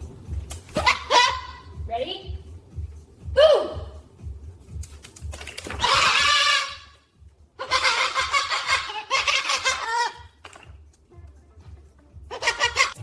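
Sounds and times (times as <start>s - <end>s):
loud cackling laughter: 7.6s - 10.3s, 12.3s - 13.0s.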